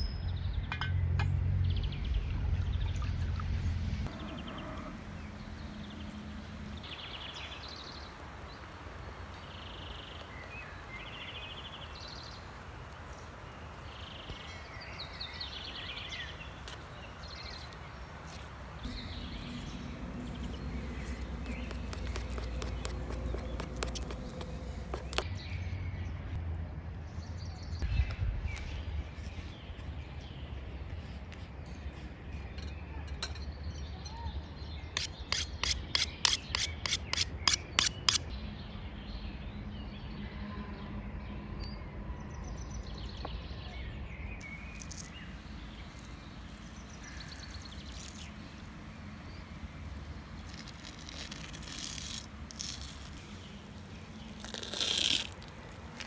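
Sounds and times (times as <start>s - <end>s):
outdoor background noise: 0.0s - 56.0s.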